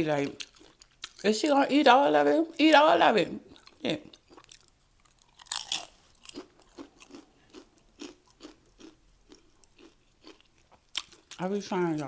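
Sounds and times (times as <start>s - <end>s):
crunching and chewing chips: 3.5s - 12.0s.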